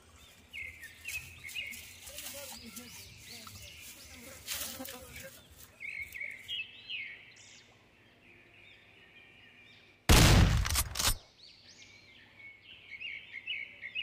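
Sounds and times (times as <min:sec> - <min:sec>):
birds chirping faintly: 0:00.0 - 0:14.0
gunshot: 0:10.1 - 0:11.2.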